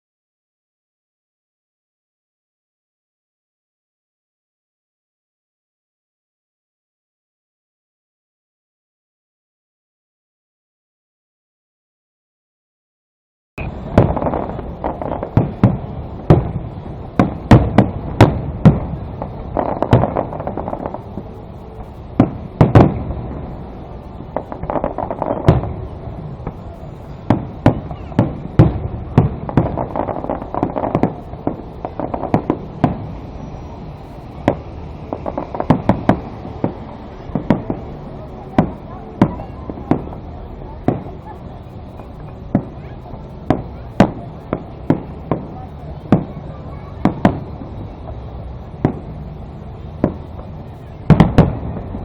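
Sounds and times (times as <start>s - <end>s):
fireworks bangs: 13.6s - 52.0s
fireworks crackling: 13.6s - 52.0s.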